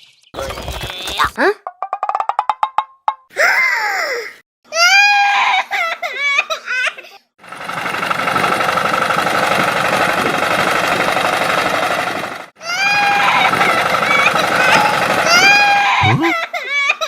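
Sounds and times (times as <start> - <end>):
high-pitched wordless vocal cries: 1.1 - 1.6, 3.3 - 6.2, 12.6 - 17.0
machine rattling rapidly: 7.4 - 15.9.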